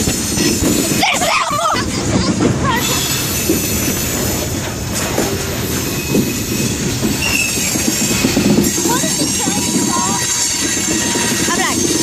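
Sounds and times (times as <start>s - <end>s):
train wheels rumbling on rails: 0.0s - 12.0s
wheel squeal: 5.7s - 12.0s.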